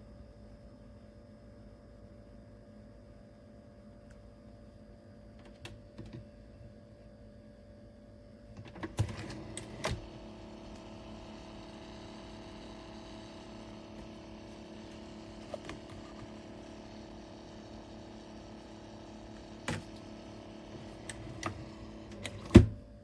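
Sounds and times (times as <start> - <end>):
coffee maker humming: 8.6 - 22.8.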